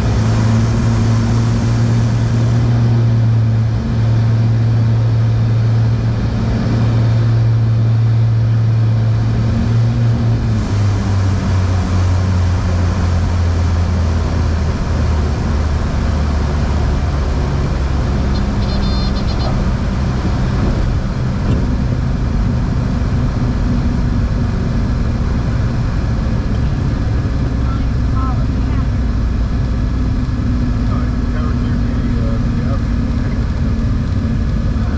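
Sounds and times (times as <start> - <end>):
aircraft piston engines droning: 10.5 - 21.4
short high-pitched tone: 18.4 - 19.6.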